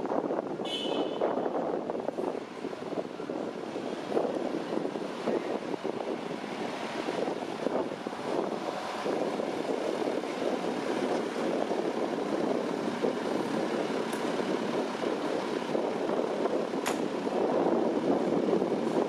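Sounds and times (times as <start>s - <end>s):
street traffic rumble: 0.0s - 19.0s
sharp click: 16.8s - 17.1s.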